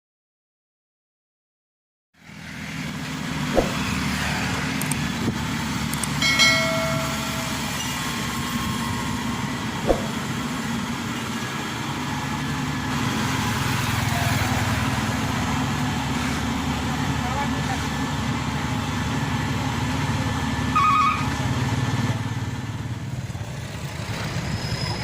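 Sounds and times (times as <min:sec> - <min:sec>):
heavy vehicle engine running: 0:02.2 - 0:25.0
sharp knocks: 0:03.6 - 0:03.9, 0:09.8 - 0:10.3
brief high-pitched tone: 0:06.2 - 0:08.3.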